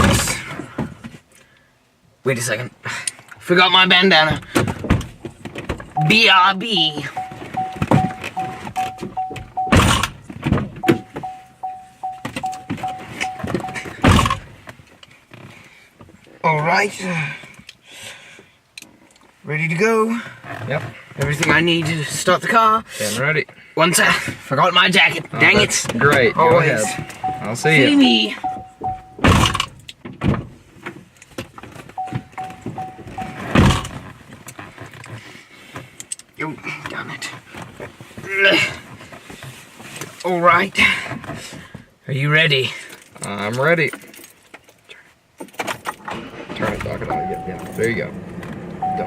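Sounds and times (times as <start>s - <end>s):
car door warning chime beeping: 5.9s - 10.2s, 10.8s - 14.4s, 25.4s - 29.5s, 32.0s - 33.8s, 47.1s - 48.0s, 48.8s - 49.0s
car door shutting: 7.0s - 14.7s, 25.4s - 34.2s.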